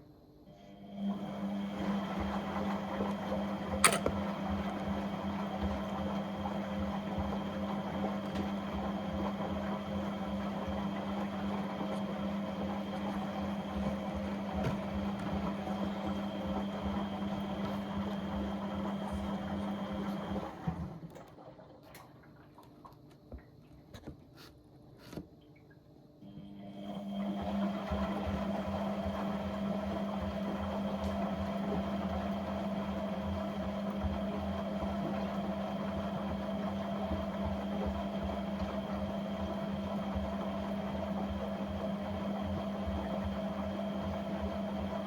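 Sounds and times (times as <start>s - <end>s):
appliance motor humming: 0.8s - 21.1s.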